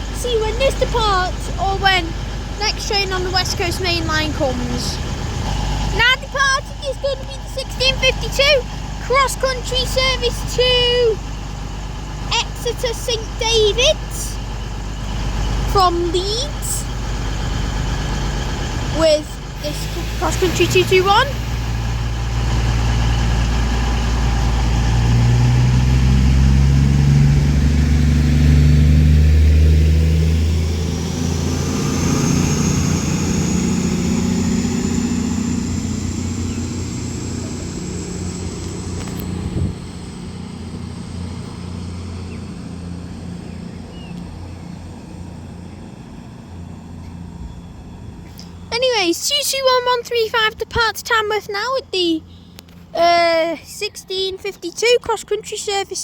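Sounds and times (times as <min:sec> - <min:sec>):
high whine climbing in pitch: 0:00.0 - 0:49.0
train diesel engines revving: 0:00.0 - 0:56.0.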